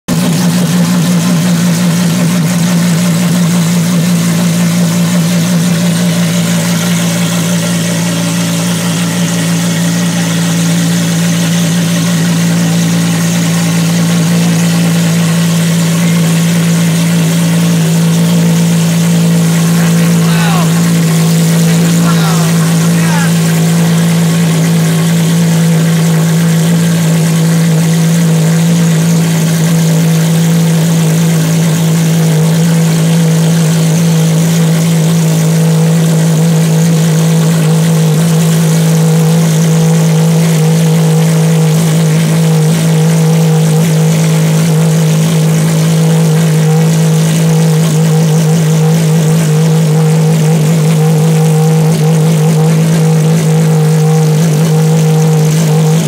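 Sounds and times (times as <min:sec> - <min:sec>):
car engine fast idling: 0:00.1 - 0:56.0.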